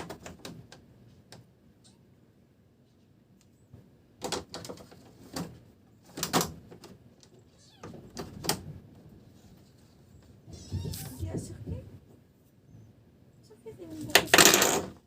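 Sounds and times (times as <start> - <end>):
knocks and clicks of plastic parts: 0.0 - 1.5, 4.2 - 7.0.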